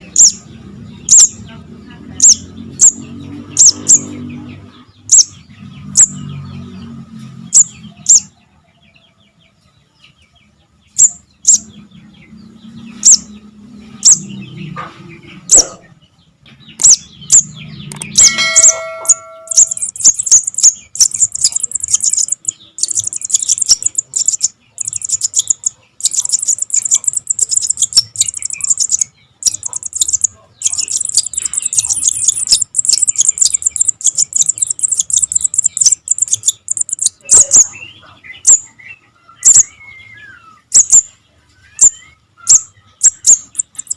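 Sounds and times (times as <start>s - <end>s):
nestlings chirping and begging: 0.0s - 43.9s
short ringing tone: 18.2s - 19.9s.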